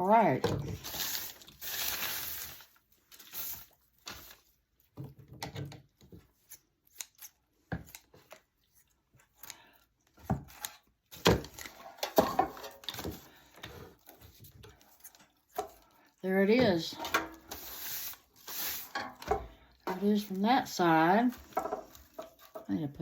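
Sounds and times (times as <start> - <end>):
small objects clicking and scraping: 21.3 - 22.7.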